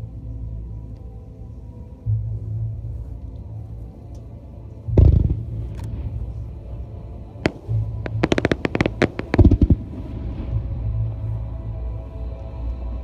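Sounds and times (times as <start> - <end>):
fireworks bursting: 7.4 - 10.1
sharp firework cracks: 7.4 - 10.1
music soundtrack: 7.5 - 9.9
heavy firework boom: 7.5 - 10.0.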